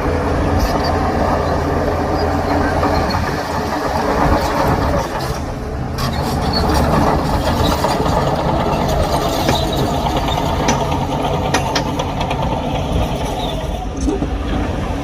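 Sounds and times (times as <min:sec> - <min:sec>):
diesel machinery engine: 0:00.0 - 0:15.0
metallic clanks and rattles: 0:04.8 - 0:14.2.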